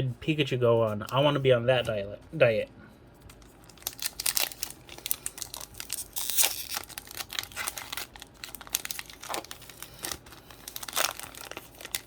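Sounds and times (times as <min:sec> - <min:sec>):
foil wrapper crinkling and tearing: 0:03.3 - 0:12.0.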